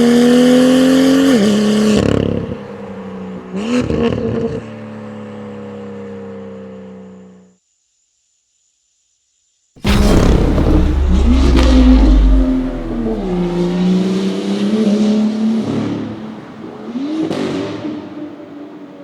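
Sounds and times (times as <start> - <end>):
car engine revving: 9.8 - 16.6.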